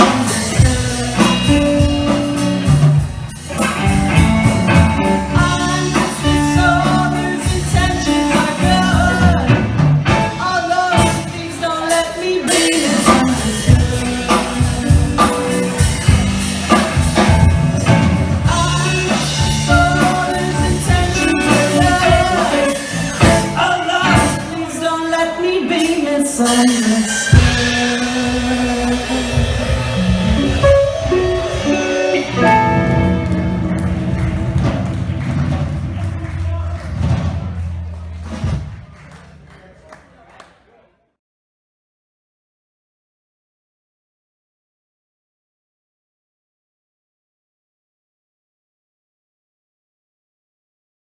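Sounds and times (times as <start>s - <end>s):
person singing: 0.0s - 36.8s
live blues-rock band playing: 0.0s - 39.1s.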